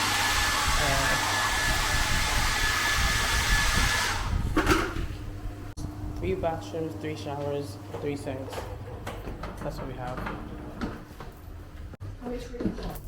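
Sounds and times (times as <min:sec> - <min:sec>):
electric blower whining: 0:00.0 - 0:05.1.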